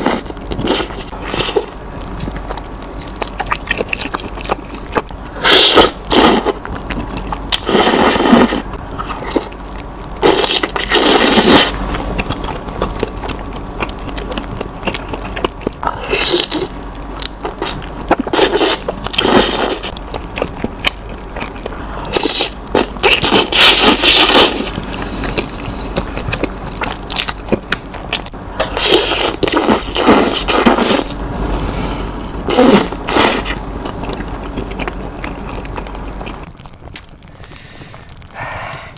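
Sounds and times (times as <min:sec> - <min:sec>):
chewing and mouth noises: 0:00.0 - 0:38.3
noodles slurped loudly: 0:07.5 - 0:08.6, 0:10.2 - 0:12.3, 0:17.6 - 0:19.9.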